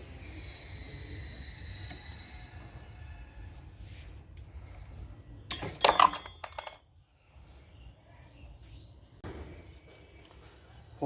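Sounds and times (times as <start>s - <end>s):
metal parts clinking: 5.5s - 6.8s.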